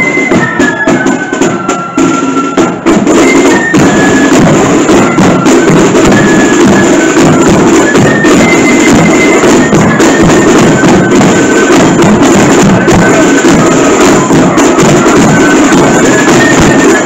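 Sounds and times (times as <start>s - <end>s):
flute melody: 0.0s - 17.0s
snare and bass drumming: 0.0s - 17.0s.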